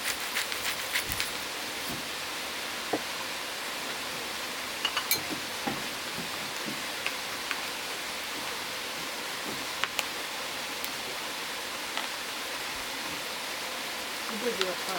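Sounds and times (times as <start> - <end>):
charcoal pops and crackles: 9.7 - 10.2.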